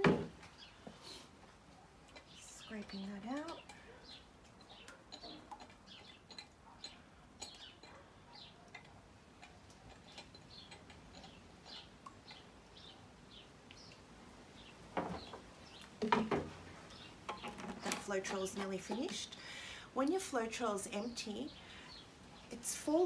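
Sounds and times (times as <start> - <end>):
small bird chirping: 2.2 - 8.7, 9.9 - 14.0.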